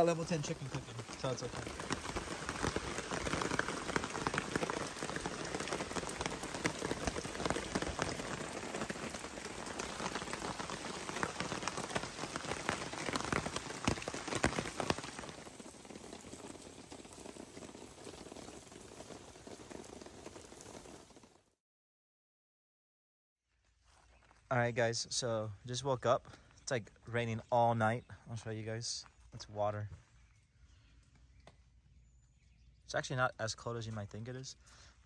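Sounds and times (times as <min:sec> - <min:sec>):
heavy rain pattering: 0:00.0 - 0:21.5.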